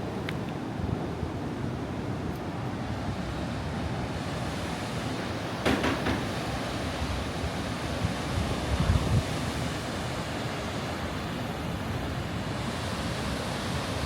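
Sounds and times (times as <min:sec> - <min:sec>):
wind buffeting microphone: 0:02.9 - 0:09.9.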